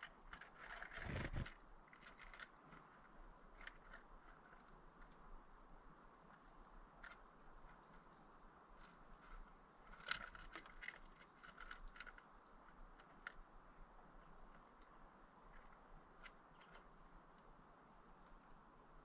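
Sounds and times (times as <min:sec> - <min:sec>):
birds tapping and clicking: 0:00.0 - 0:18.7.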